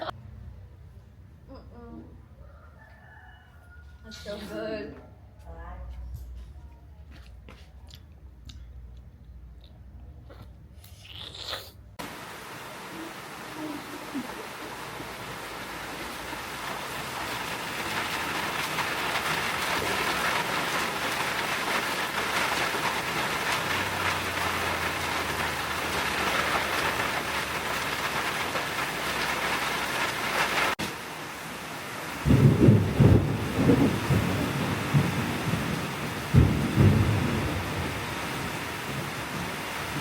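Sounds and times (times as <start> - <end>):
thunder rumbling: 12.0 - 30.8, 32.2 - 40.0
heavy rain pouring: 12.0 - 40.0.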